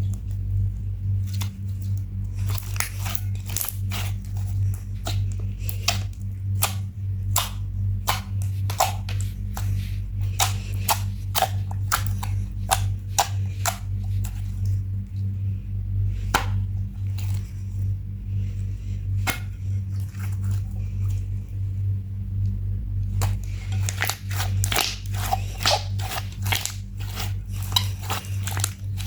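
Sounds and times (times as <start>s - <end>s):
steady low hum: 0.0s - 29.0s
slime sticky clicks and pops: 2.5s - 9.7s, 23.2s - 29.0s.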